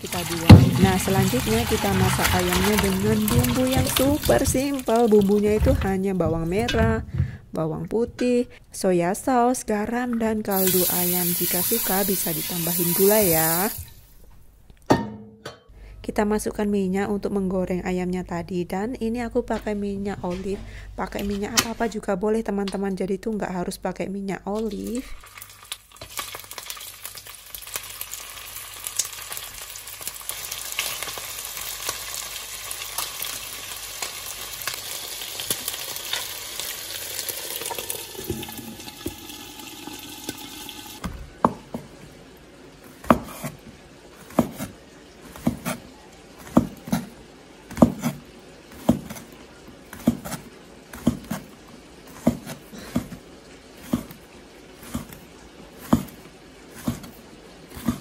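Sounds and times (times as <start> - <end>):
chicken wings sizzling in oil: 0.0 - 5.6, 10.5 - 14.1, 24.7 - 41.6
knife chopping on wooden board: 43.0 - 43.6, 44.2 - 45.8, 46.4 - 47.1, 47.7 - 51.5, 52.1 - 53.2, 53.8 - 54.2, 54.8 - 55.2, 55.8 - 56.2, 56.8 - 58.0
spatula stirring in pan: 49.9 - 58.0.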